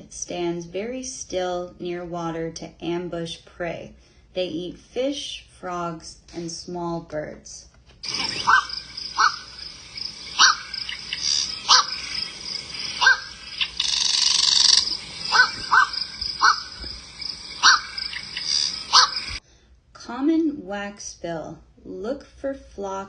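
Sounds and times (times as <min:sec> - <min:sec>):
heron calling: 0:08.0 - 0:19.4.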